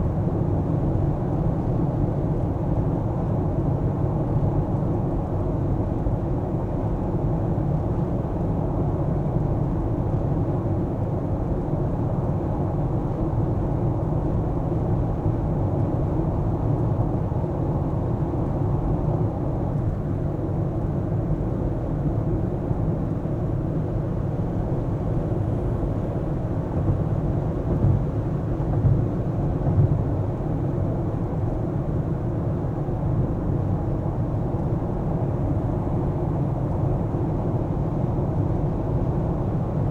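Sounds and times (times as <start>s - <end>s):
car engine and tyre road noise: 25.1s - 30.5s.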